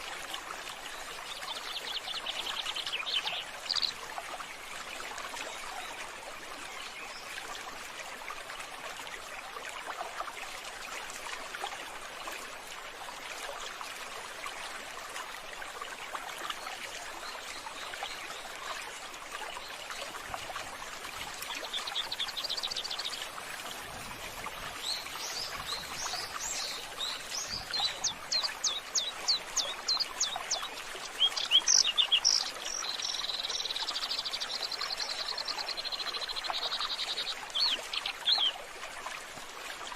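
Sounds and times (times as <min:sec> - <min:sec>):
running water: 0:00.0 - 0:39.9
birds chirping: 0:21.6 - 0:23.4, 0:24.7 - 0:34.7.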